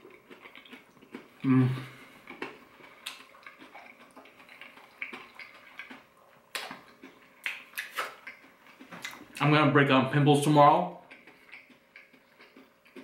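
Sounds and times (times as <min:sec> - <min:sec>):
person chewing crispy chicken: 0:00.0 - 0:09.4, 0:11.0 - 0:13.0
wet mouth clicks: 0:02.3 - 0:09.2.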